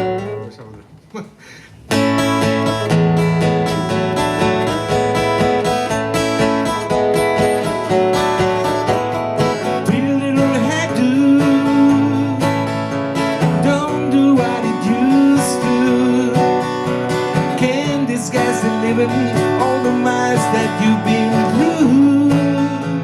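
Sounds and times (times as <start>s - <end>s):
acoustic guitar strumming: 0.0s - 0.8s, 1.8s - 23.0s
bending guitar melody line: 0.0s - 1.0s, 1.7s - 23.0s.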